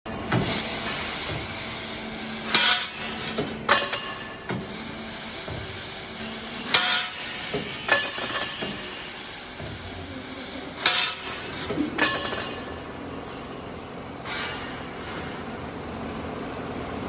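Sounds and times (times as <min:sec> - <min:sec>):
machine steady hiss: 0:00.3 - 0:12.5.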